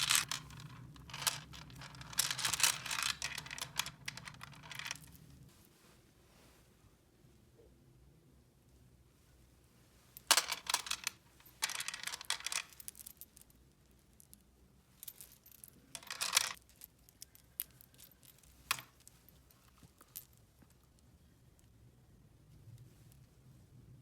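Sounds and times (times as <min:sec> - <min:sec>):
small hard objects clicking and rattling: 0:00.0 - 0:05.1, 0:10.3 - 0:13.0, 0:16.0 - 0:19.1.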